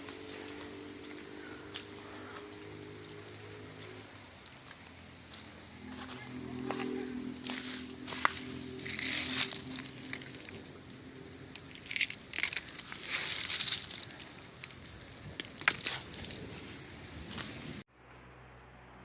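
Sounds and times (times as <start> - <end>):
wind gusts: 6.9 - 17.9.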